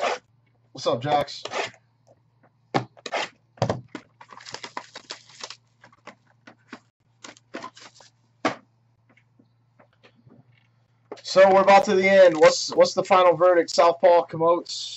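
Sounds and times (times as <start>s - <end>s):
packaging crinkling and tearing: 4.2s - 6.0s, 7.2s - 8.1s.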